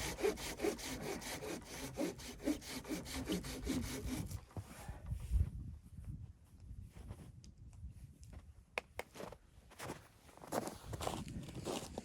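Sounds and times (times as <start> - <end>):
hand saw cutting wood: 0.0 - 4.4.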